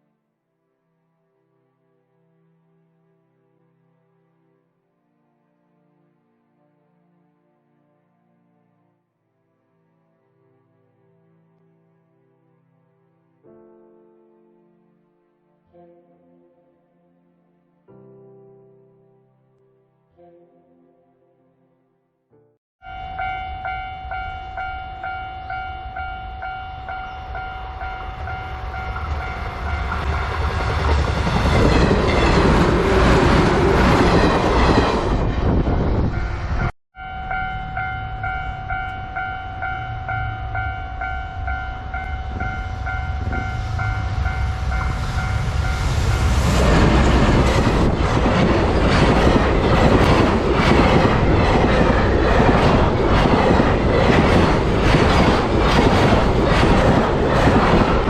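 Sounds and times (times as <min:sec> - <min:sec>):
level-crossing warning bell ringing: 0:22.8 - 0:30.7, 0:36.2 - 0:46.4
train rumble and wheel clatter: 0:23.0 - 0:58.0.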